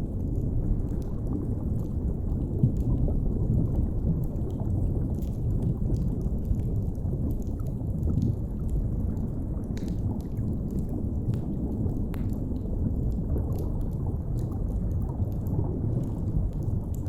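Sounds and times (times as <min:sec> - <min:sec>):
deep underwater rumble: 0:00.0 - 0:17.0.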